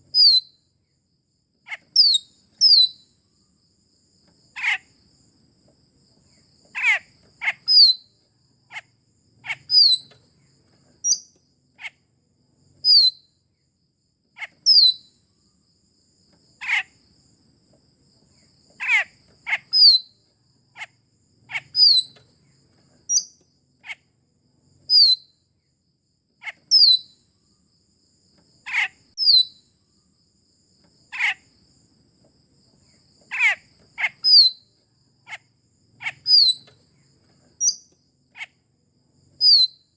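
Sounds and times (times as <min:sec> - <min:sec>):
myna calls: 0:04.6 - 0:04.9, 0:06.8 - 0:07.8, 0:18.8 - 0:19.9, 0:31.1 - 0:31.4, 0:33.3 - 0:34.4.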